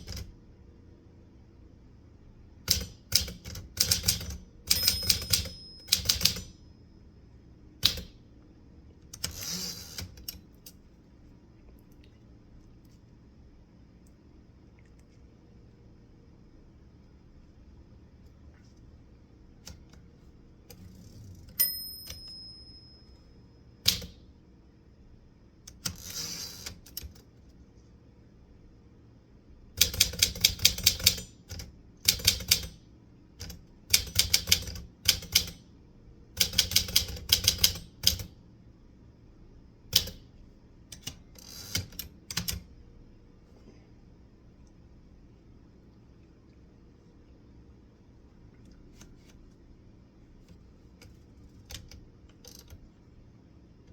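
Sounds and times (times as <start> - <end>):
typewriter key strikes: 0.0 - 0.3, 2.7 - 6.6, 23.9 - 24.2, 29.8 - 32.8, 33.4 - 35.6, 36.4 - 38.3
typewriter bell ringing: 3.9 - 6.6, 21.6 - 23.3.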